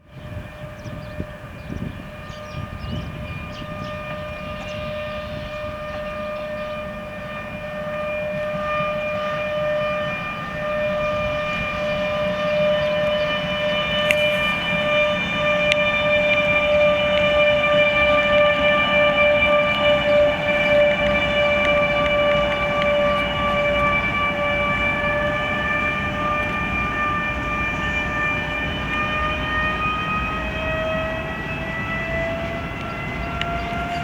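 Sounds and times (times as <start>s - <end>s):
electric locomotive whine and rumble: 0.0s - 34.0s.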